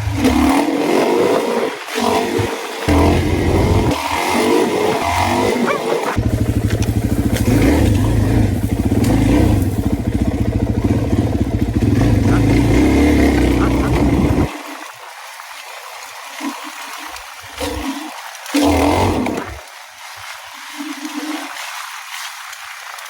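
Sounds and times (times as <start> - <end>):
dirt bike engine revving: 0.0 - 14.5, 18.6 - 19.6.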